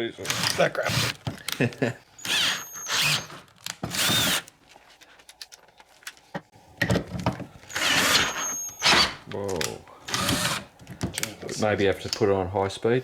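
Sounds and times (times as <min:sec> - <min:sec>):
power drill whining: 0:00.2 - 0:01.3, 0:02.2 - 0:04.5, 0:07.6 - 0:09.2, 0:10.1 - 0:10.7.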